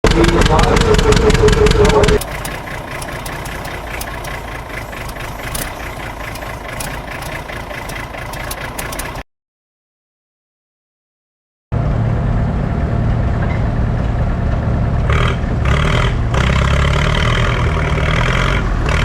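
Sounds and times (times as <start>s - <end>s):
tractor engine idling: 0.0s - 9.2s.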